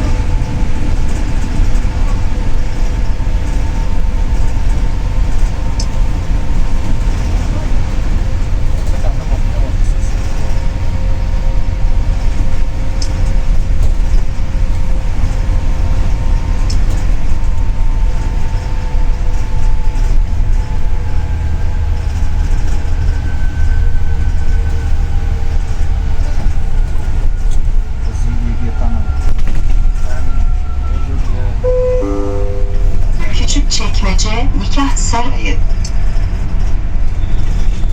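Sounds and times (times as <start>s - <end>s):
bus engine and road rumble: 0.0s - 37.9s
faint whine: 31.7s - 34.7s.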